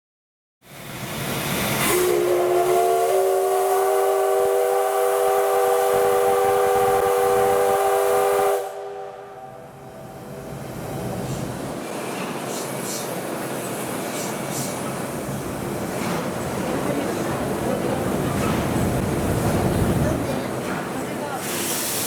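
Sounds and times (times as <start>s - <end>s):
steam whistle blast: 1.8s - 10.2s
train running noise: 9.6s - 22.0s.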